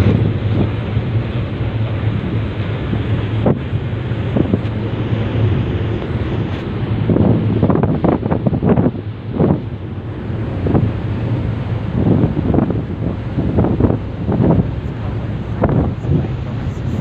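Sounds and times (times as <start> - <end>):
steady low hum: 0.0 - 17.0
water washing: 0.0 - 17.0
wind buffeting microphone: 0.0 - 17.0.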